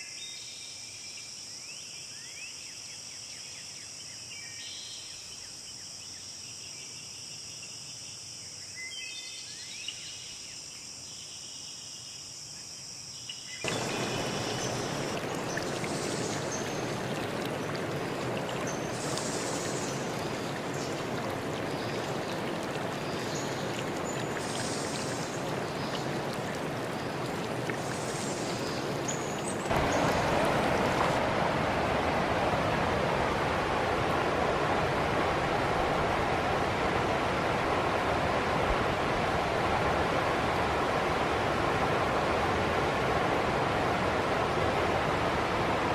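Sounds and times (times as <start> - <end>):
insects droning: 10.3 - 31.2
running stream: 13.6 - 45.9
birds chirping: 13.7 - 31.2
waterfall rushing: 13.7 - 45.9.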